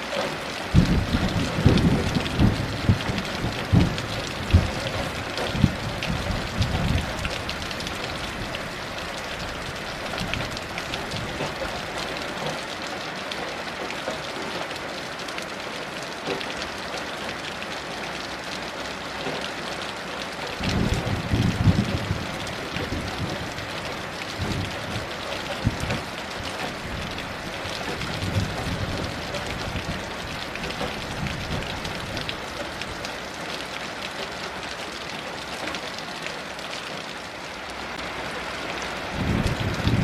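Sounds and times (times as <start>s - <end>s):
heavy rain: 0.0s - 40.0s
distant thunder rumbles: 0.7s - 8.4s, 20.6s - 32.3s.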